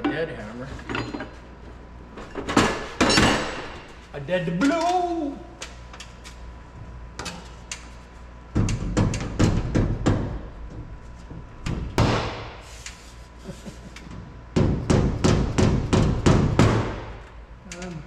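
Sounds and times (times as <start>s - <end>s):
hammer knocking metal panel: 8.5s - 10.8s, 14.6s - 17.1s.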